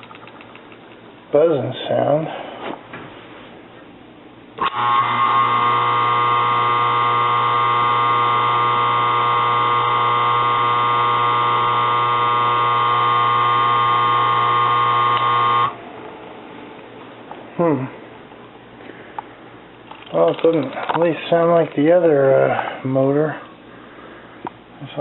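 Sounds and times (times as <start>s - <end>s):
electric motor buzzing: 4.6s - 15.8s.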